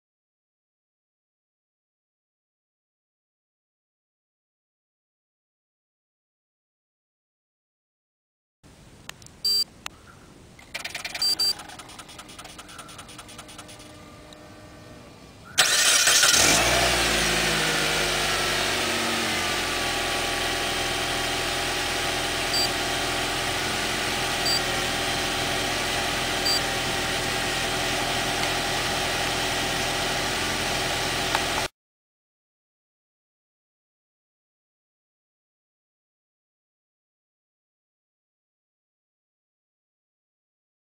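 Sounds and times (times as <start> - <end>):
short beeps: 9.4 - 9.7, 11.1 - 11.6, 22.5 - 22.8, 24.4 - 24.6, 26.4 - 26.6
car engine starting: 10.6 - 31.7
car engine idling: 10.7 - 31.7.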